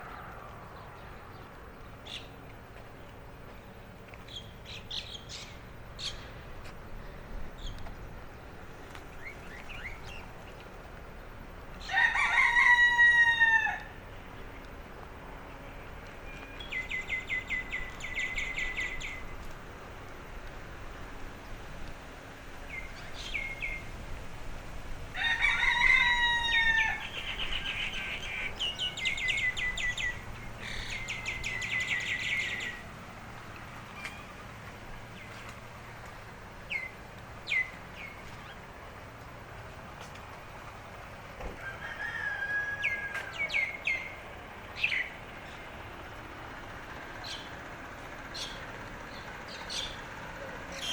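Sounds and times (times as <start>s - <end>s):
small birds trilling and chirping: 0.0s - 50.9s
rooster crowing: 11.8s - 14.0s, 25.1s - 29.6s, 41.4s - 43.7s.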